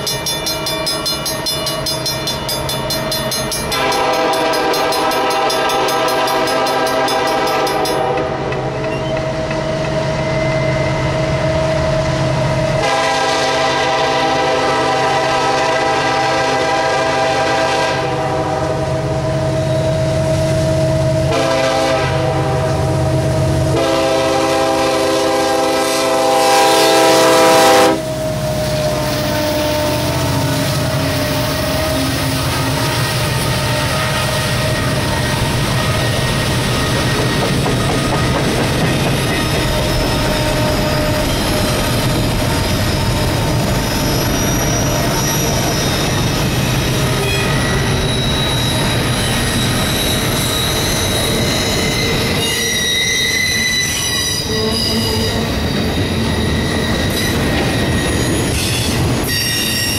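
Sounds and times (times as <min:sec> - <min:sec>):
train cars rumbling on rails: 0:00.0 - 0:59.9
locomotive horn blasts: 0:03.7 - 0:08.7, 0:12.8 - 0:19.5, 0:21.2 - 0:32.9, 0:47.2 - 0:47.6
wheel squeal: 0:38.8 - 0:59.9.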